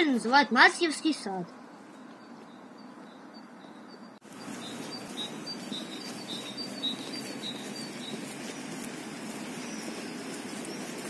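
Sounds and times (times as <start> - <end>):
outdoor background noise: 0.0 - 11.0
small bird chirping: 0.0 - 11.0.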